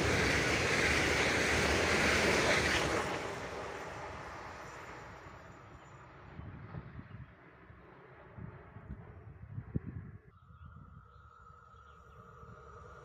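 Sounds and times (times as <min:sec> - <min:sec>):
train wheels rushing on rails: 0:00.0 - 0:08.8.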